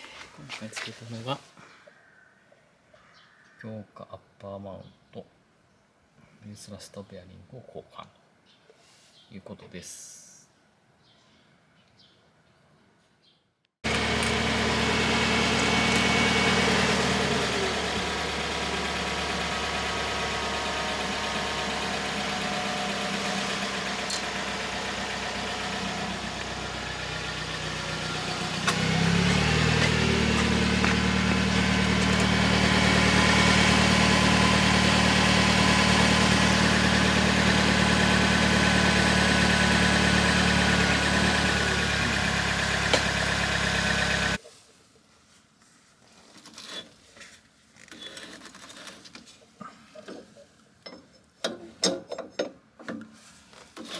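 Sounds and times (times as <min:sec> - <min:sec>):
car engine running: 0:13.8 - 0:44.4.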